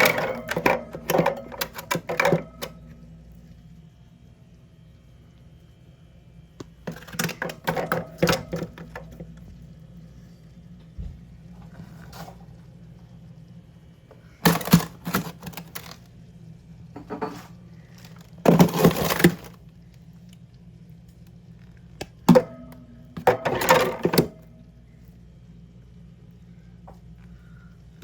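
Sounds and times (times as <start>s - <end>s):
objects clattering and knocking: 0.0s - 3.0s, 6.8s - 9.4s, 11.0s - 12.5s, 14.2s - 16.1s, 16.9s - 19.6s, 22.3s - 24.5s
low steady hum: 0.0s - 28.0s.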